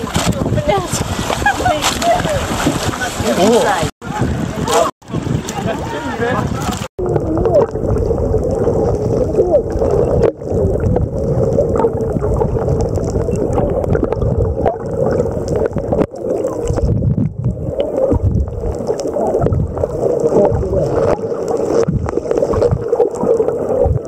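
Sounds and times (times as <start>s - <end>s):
water gurgling and sloshing: 0.0s - 24.0s
crackles: 6.6s - 24.0s.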